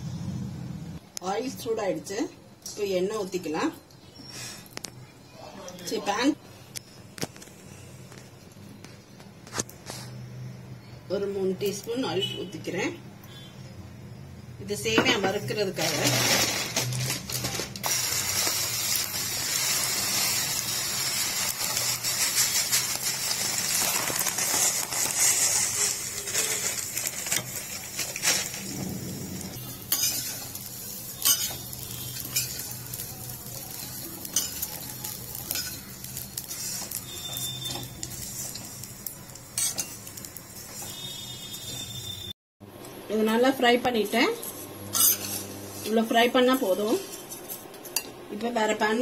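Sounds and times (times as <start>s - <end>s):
noodles sizzling in hot oil: 14.8s - 42.3s, 43.2s - 47.4s
spoon scraping and clinking on pan: 29.8s - 32.7s, 33.8s - 34.8s, 39.6s - 40.1s, 44.9s - 45.5s.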